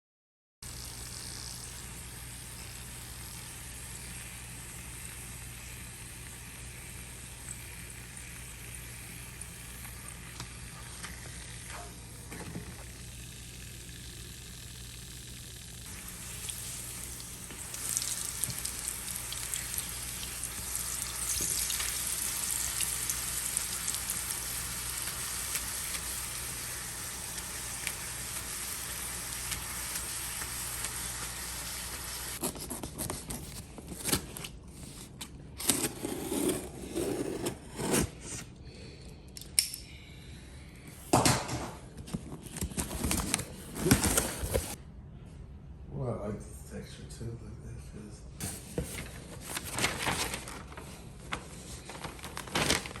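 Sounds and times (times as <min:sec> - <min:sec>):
food sizzling in a frying pan: 0:00.7 - 0:12.1, 0:12.7 - 0:32.4.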